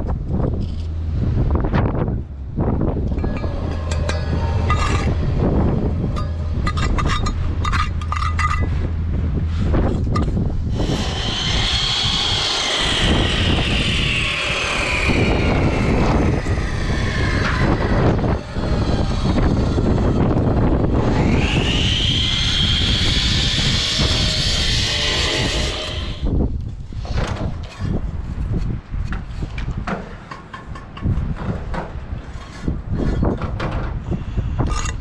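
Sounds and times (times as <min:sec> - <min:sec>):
high whine falling in pitch: 0:00.0 - 0:26.6
wind buffeting microphone: 0:00.0 - 0:35.0.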